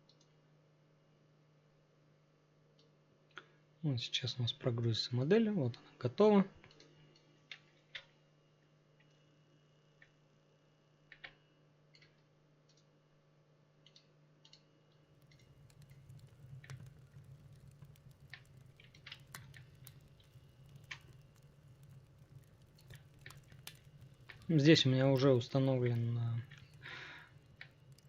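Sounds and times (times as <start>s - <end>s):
faint sharp clicks: 15.2s - 28.0s
low steady hum: 15.2s - 28.0s.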